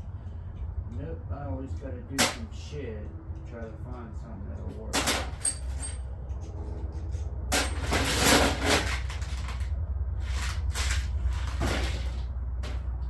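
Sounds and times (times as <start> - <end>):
steady low hum: 0.0 - 13.0
metal tools clinking and rattling: 4.6 - 9.7.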